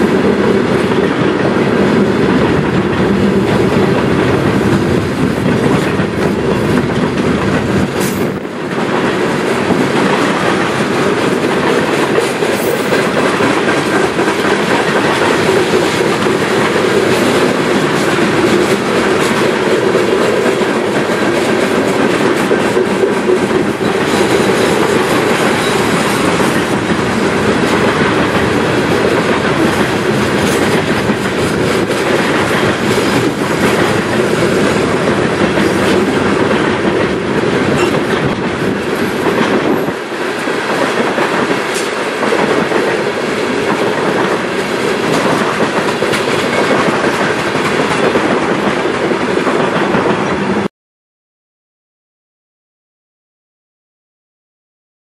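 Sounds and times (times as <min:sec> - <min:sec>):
freight train wheels rumbling: 0:00.0 - 0:50.7.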